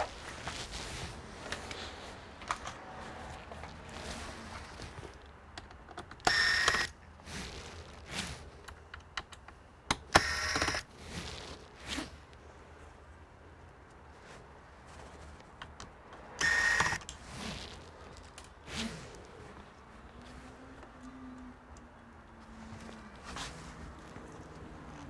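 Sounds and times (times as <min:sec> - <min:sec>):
plastic and metal clicks: 0:05.5 - 0:06.9.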